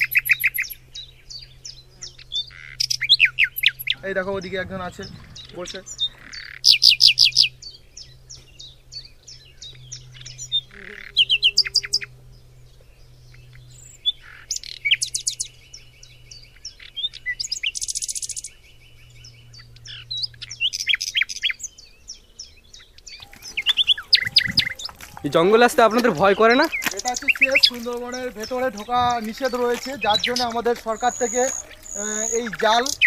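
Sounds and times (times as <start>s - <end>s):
buzzy rapid bird trill: 0.0s - 21.9s, 23.1s - 33.0s
birds chirping and trilling: 0.0s - 33.0s.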